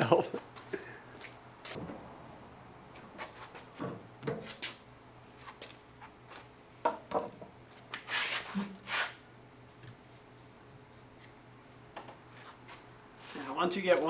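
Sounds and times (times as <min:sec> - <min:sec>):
short scraping hisses: 0:08.1 - 0:09.2.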